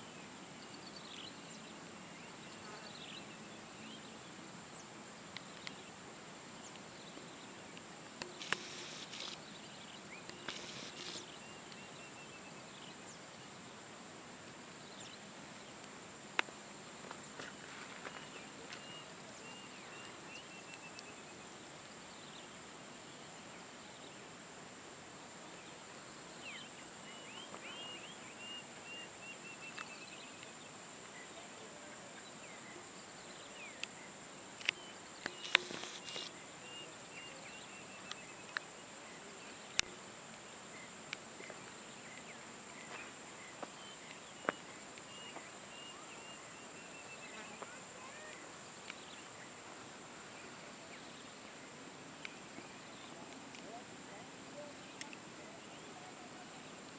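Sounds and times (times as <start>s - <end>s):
sharp clicks: 7.7s - 9.4s, 10.2s - 11.8s, 34.6s - 36.3s
high-pitched insect drone: 8.4s - 9.4s, 10.4s - 11.6s.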